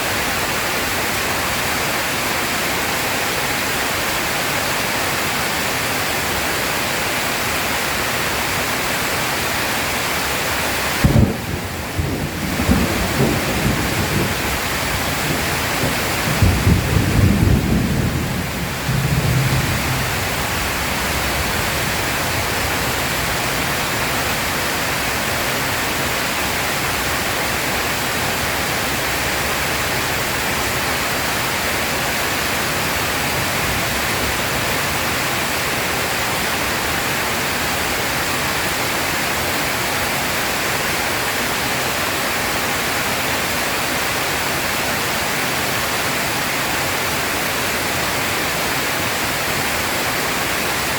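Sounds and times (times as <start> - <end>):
dense rain hiss: 0.0 - 50.9
thunder rumble: 11.0 - 24.6.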